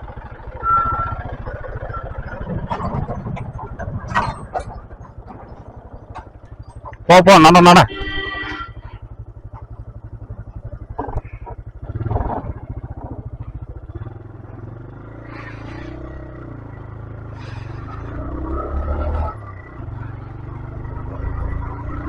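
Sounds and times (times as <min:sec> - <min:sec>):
motorcycle engine chugging: 0:00.0 - 0:18.6
rattles: 0:01.3 - 0:07.1.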